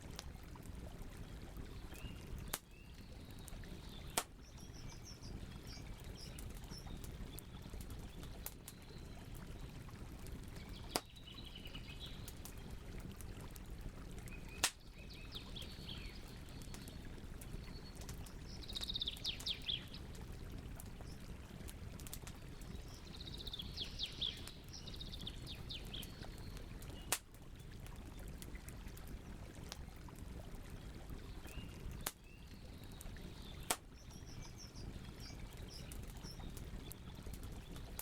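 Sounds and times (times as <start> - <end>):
campfire burning: 0.0 - 38.0
fire popping: 1.5 - 11.2, 12.1 - 14.8, 30.9 - 38.0
small birds chirping: 1.6 - 13.4, 14.1 - 21.3, 22.2 - 27.2, 31.2 - 38.0.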